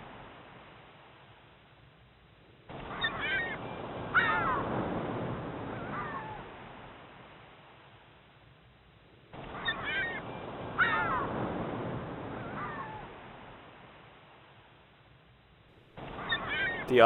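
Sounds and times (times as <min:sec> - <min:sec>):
birds squawking: 0:16.1 - 0:17.0.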